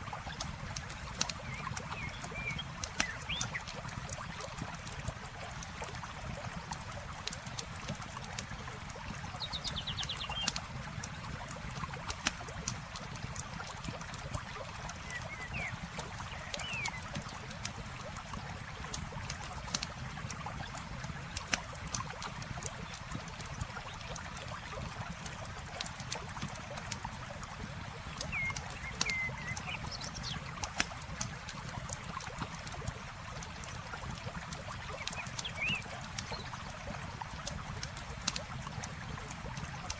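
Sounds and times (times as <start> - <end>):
campfire crackling and popping: 0.0 - 15.0, 15.7 - 39.9
flowing water: 0.0 - 39.9
bird chirps: 28.2 - 30.4, 35.1 - 36.4.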